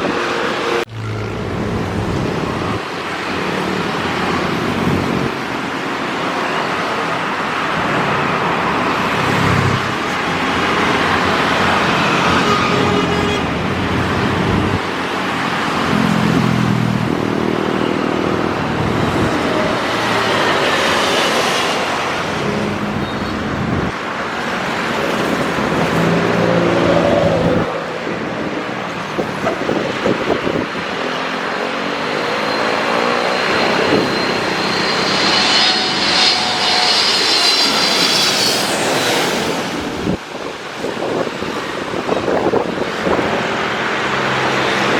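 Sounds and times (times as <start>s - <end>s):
high steady whine: 0.0s - 5.9s, 27.3s - 41.2s
vehicles passing: 0.0s - 44.9s.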